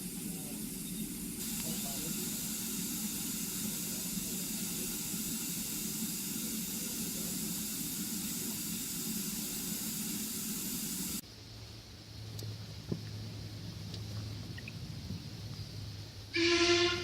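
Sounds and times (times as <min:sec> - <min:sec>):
steam locomotive hissing steam: 0:00.0 - 0:11.2, 0:16.3 - 0:17.0.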